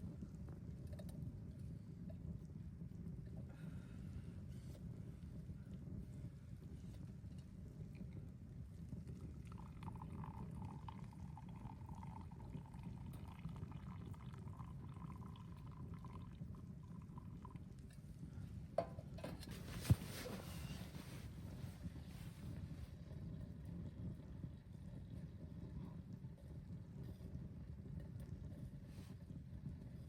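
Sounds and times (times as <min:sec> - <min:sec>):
liquid being poured: 0:09.1 - 0:17.9.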